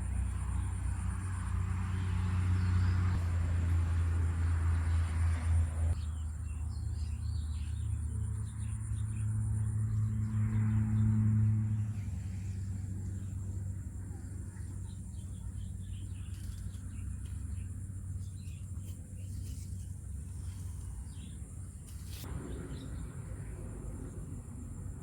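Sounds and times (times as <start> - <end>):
low rumble: 22.2 - 25.0.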